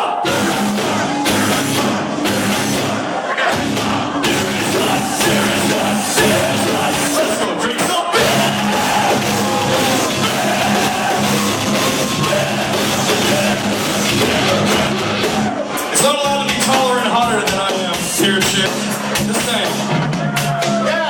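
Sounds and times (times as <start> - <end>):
heavy metal band playing: 0.0 - 21.0
person singing: 3.4 - 15.1.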